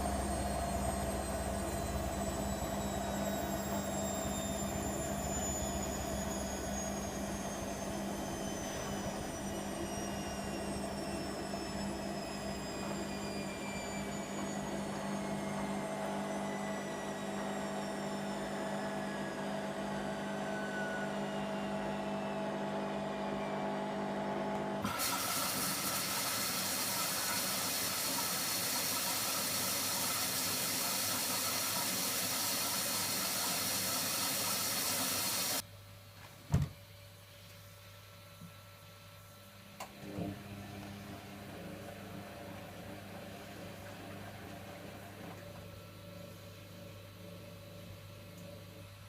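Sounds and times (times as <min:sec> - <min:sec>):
washer motor whining down: 0:00.0 - 0:35.6, 0:39.7 - 0:49.0.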